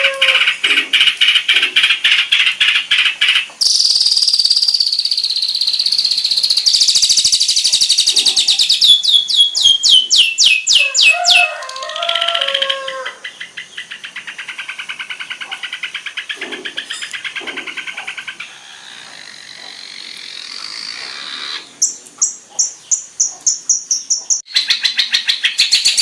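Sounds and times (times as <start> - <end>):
songbird chips and trills: 0.2 - 26.0
sharp down-slurred whistles: 3.6 - 11.1.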